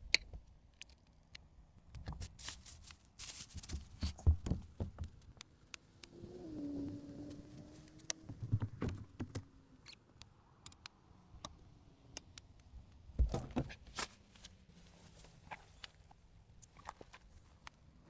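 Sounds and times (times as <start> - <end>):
rustling: 2.1 - 5.4, 13.7 - 17.6.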